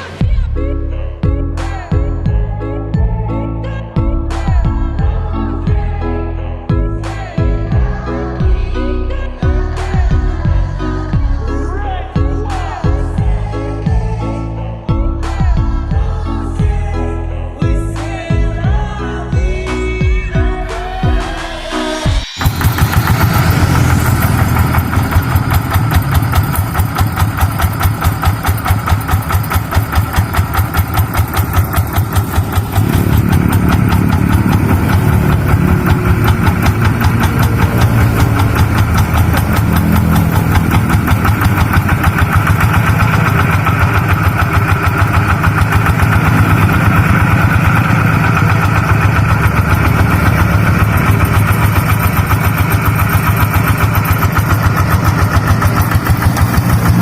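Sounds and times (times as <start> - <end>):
tractor engine chugging: 21.0 - 57.0.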